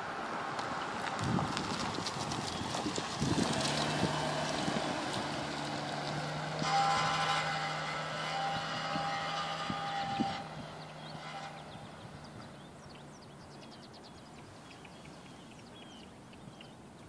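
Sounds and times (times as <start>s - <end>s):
car engine running: 1.2s - 8.1s.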